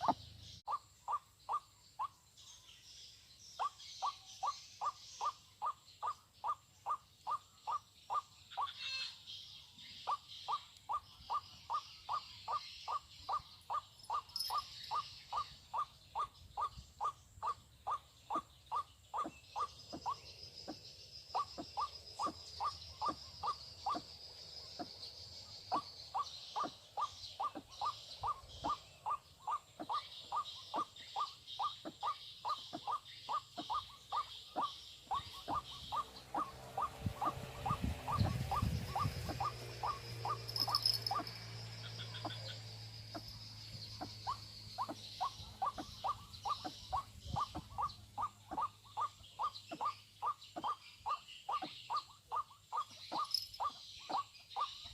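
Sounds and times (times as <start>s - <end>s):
insects chirring: 0.0s - 54.9s
waterhen calling: 25.8s - 42.5s.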